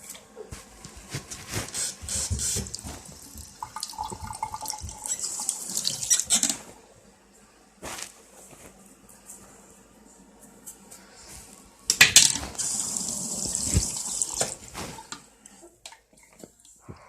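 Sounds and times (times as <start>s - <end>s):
water splashing and running: 1.2s - 6.1s, 12.4s - 15.0s.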